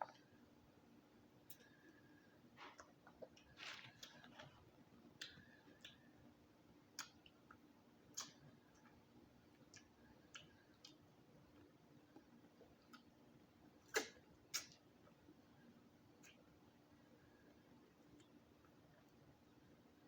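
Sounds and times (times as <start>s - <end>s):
faint steady hum: 0.0s - 20.0s
mouth clicks and smacks: 6.9s - 8.9s, 13.8s - 14.9s, 16.2s - 16.5s.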